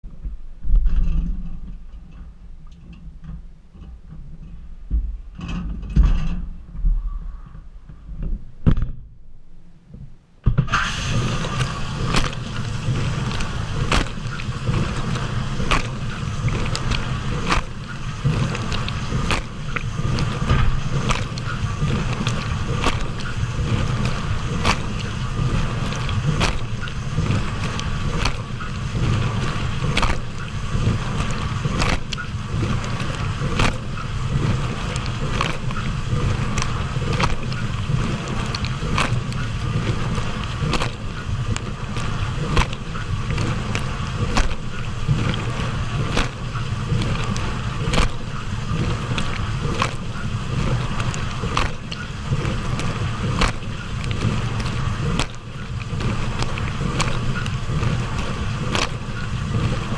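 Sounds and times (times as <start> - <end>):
sharp splash or hit: 10.5 - 59.9
dishwasher water spraying: 10.7 - 59.9.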